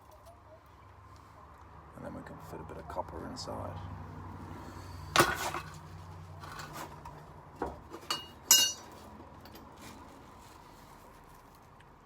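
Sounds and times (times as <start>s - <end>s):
copper pipe knocking and clinking: 8.1s - 8.9s.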